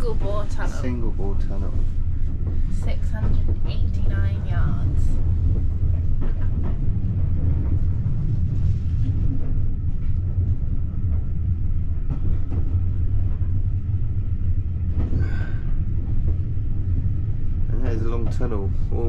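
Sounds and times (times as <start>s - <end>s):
train carriage rumbling in tunnel: 0.0s - 19.0s.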